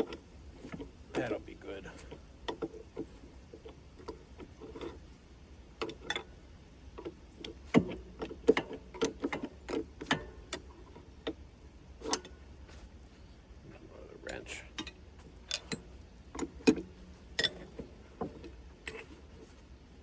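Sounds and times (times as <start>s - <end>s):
metal clicks and knocks: 2.0s - 5.1s, 5.8s - 12.4s, 14.3s - 19.5s.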